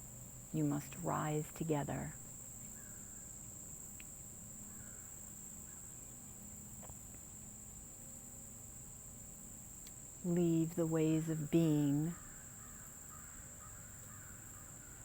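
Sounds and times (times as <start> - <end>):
insects trilling: 0.0 - 15.0
faint ticks: 3.9 - 4.2, 9.8 - 10.1.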